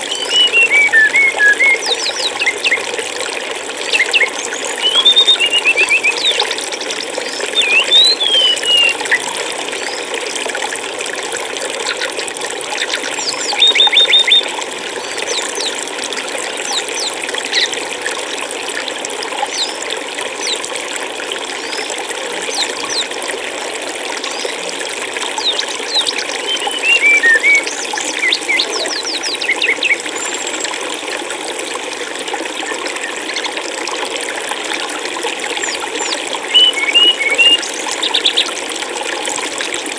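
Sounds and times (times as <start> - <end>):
small birds chirping: 0.0 - 2.8, 3.8 - 9.2, 12.8 - 14.5, 15.1 - 15.8, 16.6 - 17.8, 25.4 - 30.5, 35.6 - 38.6
stream flowing and trickling: 0.0 - 39.9.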